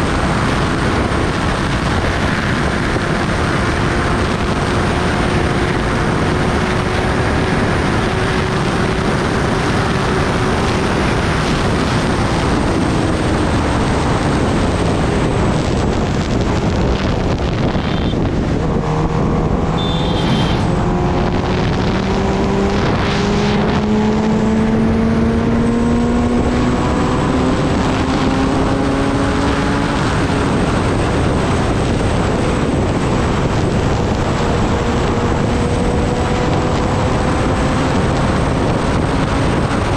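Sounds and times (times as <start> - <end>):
motorcycle engine: 0.0 - 39.9
wind rushing over microphone: 0.0 - 39.9.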